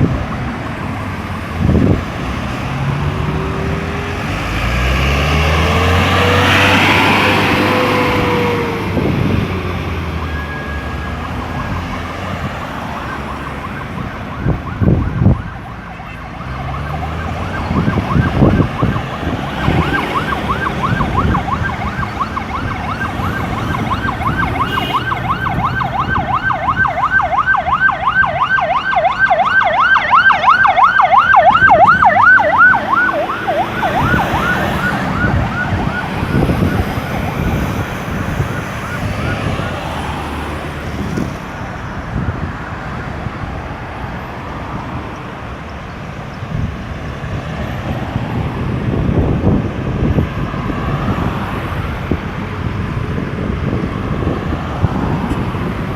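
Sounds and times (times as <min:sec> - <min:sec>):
emergency siren yelping: 0:00.0 - 0:41.3
road traffic passing: 0:00.0 - 0:55.9.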